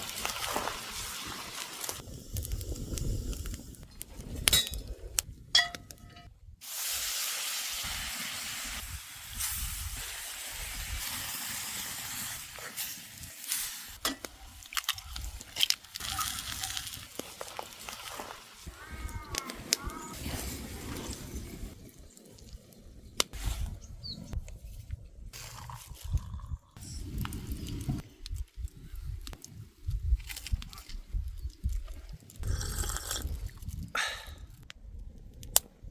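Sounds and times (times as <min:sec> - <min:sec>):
food sizzling in a skillet: 0:06.6 - 0:14.0.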